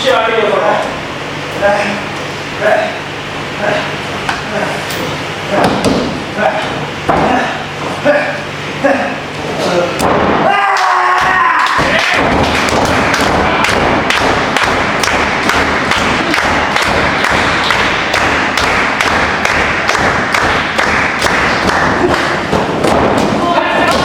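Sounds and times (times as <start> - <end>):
sharp thuds and claps: 11.2 - 24.0.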